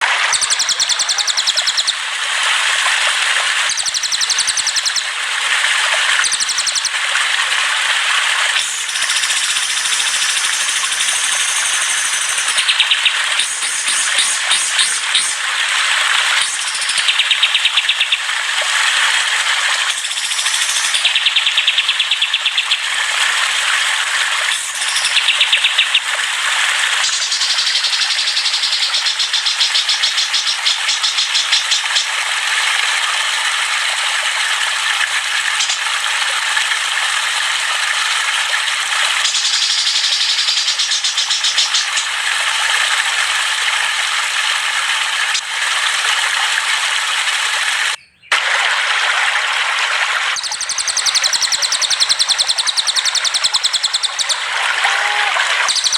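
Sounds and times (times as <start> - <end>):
songbirds chirping and trilling: 0.3 - 2.0, 3.7 - 5.1, 6.2 - 6.9, 8.8 - 15.4, 16.4 - 18.2, 19.9 - 22.8, 24.7 - 26.1, 27.1 - 32.1, 39.2 - 42.2, 47.9 - 48.3, 50.4 - 55.9.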